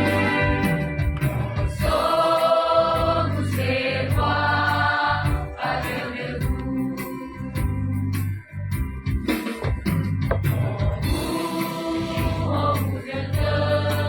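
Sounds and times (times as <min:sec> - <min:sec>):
choir singing a hymn: 0:00.0 - 0:07.7, 0:10.8 - 0:14.0.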